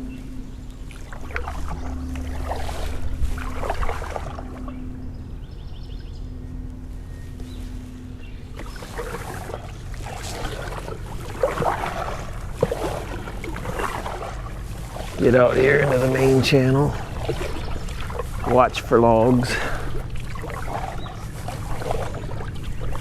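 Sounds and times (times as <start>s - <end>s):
paddle splashing in water: 0.0s - 5.1s, 7.5s - 23.0s
wind rumble on microphone: 0.0s - 23.0s.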